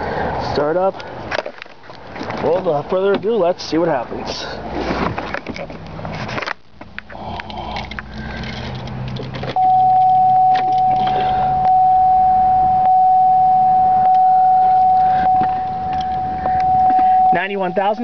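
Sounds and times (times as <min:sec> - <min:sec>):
car engine starting and idling: 0:06.8 - 0:18.0
loud high-pitched tone: 0:09.6 - 0:18.0.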